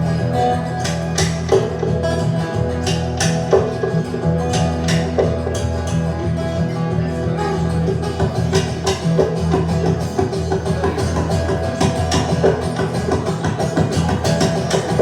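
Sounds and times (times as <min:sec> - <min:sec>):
live guitar instrumental: 0:00.0 - 0:15.0.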